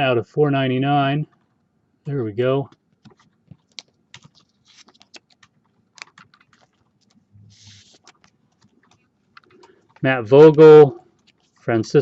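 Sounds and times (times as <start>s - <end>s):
trading cards clicking and tapping: 2.7s - 11.6s
soft rustle: 2.9s - 12.0s.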